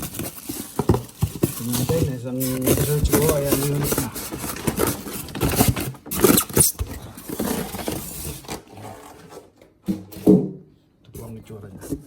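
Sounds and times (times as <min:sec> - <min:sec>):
packaging rustling and scraping: 0:00.0 - 0:09.6.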